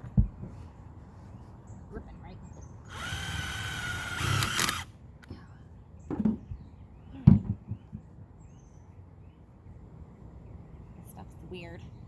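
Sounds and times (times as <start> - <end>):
power drill driving a screw: 2.9 - 4.9
knocks and clunks of handling tools: 6.1 - 6.5.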